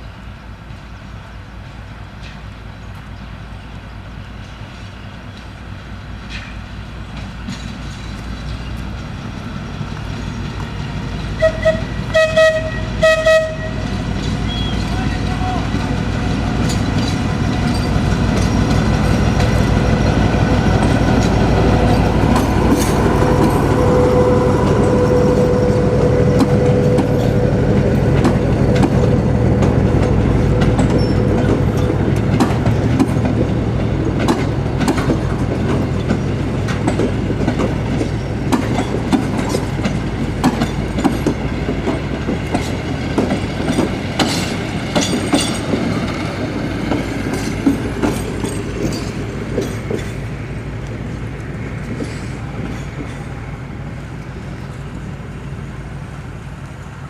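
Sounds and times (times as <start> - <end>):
train diesel engine rumbling: 0.0 - 57.0
wheels clicking over rail joints: 13.5 - 23.7, 26.3 - 55.5
steady high tone: 21.9 - 32.4.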